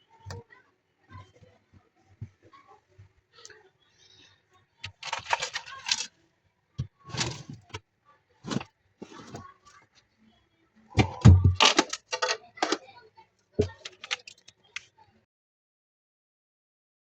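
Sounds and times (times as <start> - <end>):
ice scraping and clattering: 4.9 - 6.1, 7.1 - 7.8, 8.5 - 9.4, 11.6 - 12.8.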